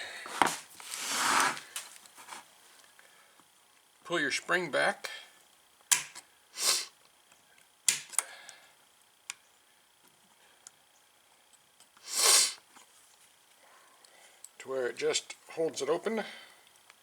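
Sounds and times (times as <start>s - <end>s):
breathy sniffs: 6.6s - 6.9s, 12.0s - 12.6s.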